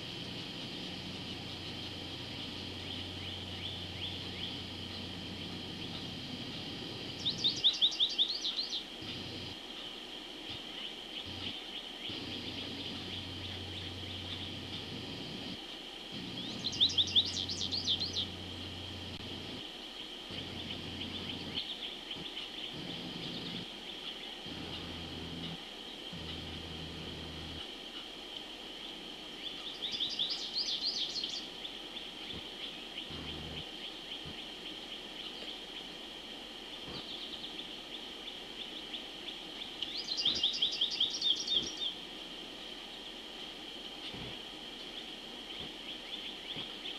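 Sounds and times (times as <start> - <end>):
bird calling: 0.0 - 9.9, 10.5 - 19.6, 20.3 - 27.7
insects trilling: 0.0 - 46.9.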